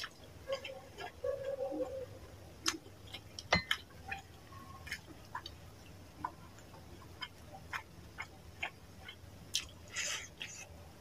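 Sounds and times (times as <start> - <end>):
wet chewing mouth clicks: 2.6 - 10.8.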